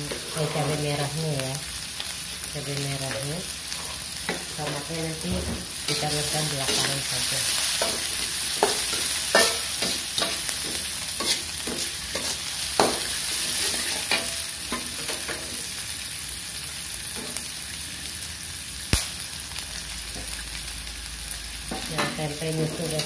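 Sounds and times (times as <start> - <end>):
oil sizzling in a wok: 0.0 - 23.0
metal spatula scraping a wok: 0.1 - 0.9, 5.9 - 15.6.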